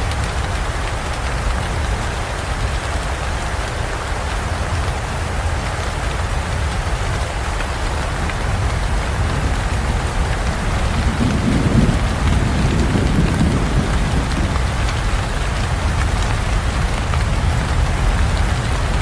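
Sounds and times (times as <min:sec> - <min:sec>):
heavy rain: 0:00.0 - 0:19.0
thunder rumble: 0:08.0 - 0:19.0.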